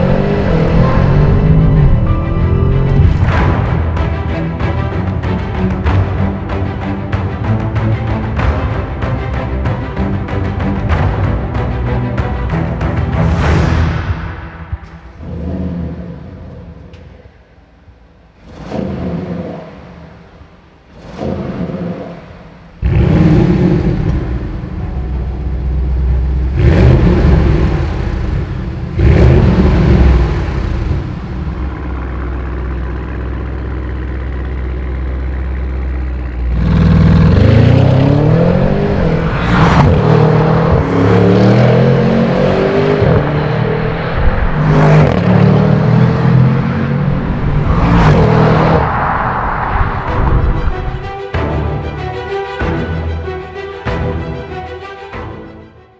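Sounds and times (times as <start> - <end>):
car engine revving and accelerating: 0.0 - 4.6, 12.9 - 17.1, 18.4 - 51.2.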